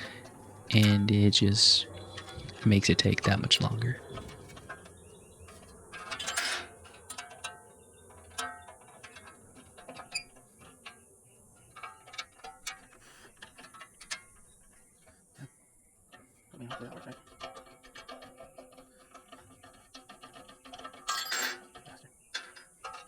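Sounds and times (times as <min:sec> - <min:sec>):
metal scrape: 0:00.0 - 0:11.0, 0:17.2 - 0:21.7
hand tools clicking on metal: 0:00.0 - 0:15.2, 0:16.1 - 0:23.0.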